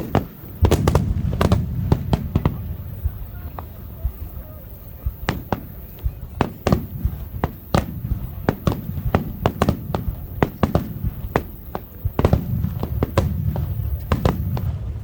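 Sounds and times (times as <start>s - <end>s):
firework shells bursting: 0.0s - 15.0s
low rumble: 12.9s - 15.0s.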